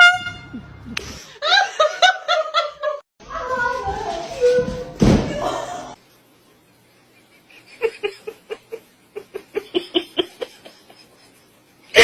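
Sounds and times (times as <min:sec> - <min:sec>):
person laughing: 0:07.2 - 0:12.0.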